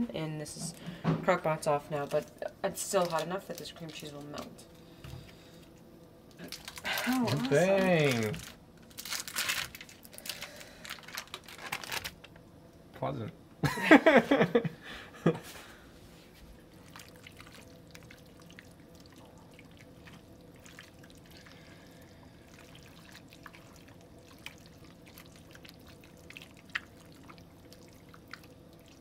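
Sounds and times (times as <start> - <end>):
thick food squelching: 16.5 - 29.0.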